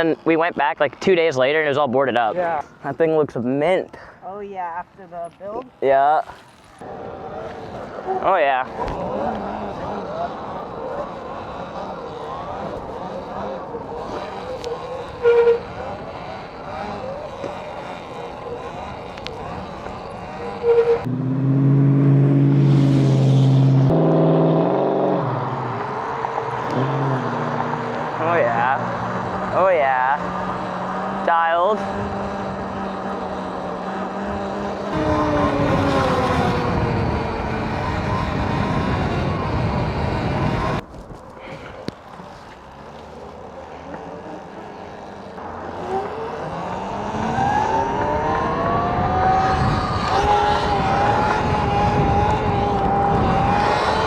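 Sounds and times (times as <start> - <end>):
wind and road noise: 0.0 - 54.0
electric motor whining: 6.9 - 21.1, 26.5 - 41.0, 43.0 - 54.0.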